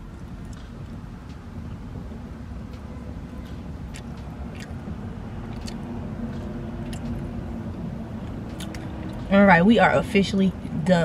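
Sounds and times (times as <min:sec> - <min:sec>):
steady low hum: 0:00.0 - 0:11.0
person chewing: 0:00.1 - 0:00.9, 0:03.4 - 0:07.3, 0:08.2 - 0:09.2
wet mouth clicks: 0:03.9 - 0:04.8, 0:05.5 - 0:07.2.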